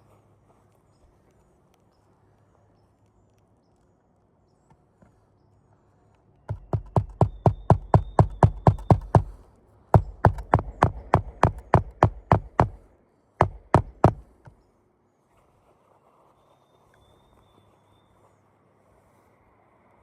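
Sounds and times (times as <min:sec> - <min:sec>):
rapid hammer strikes: 0:06.5 - 0:12.8, 0:13.4 - 0:14.4.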